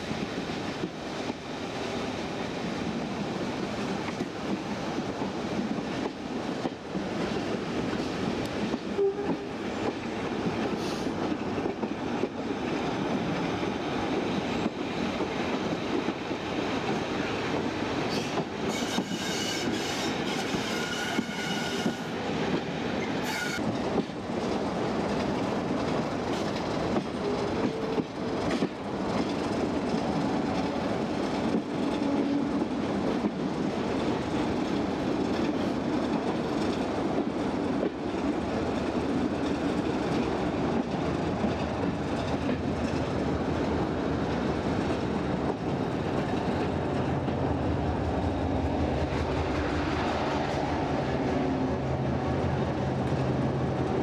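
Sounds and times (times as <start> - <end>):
train running on rails: 0.0 - 54.0
metallic wheel squeal: 23.2 - 23.6.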